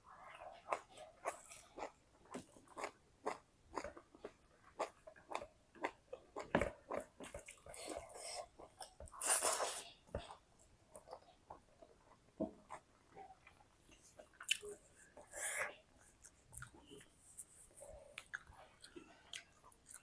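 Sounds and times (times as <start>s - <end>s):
close chewing and crunching: 0.2s - 14.9s, 16.0s - 20.0s.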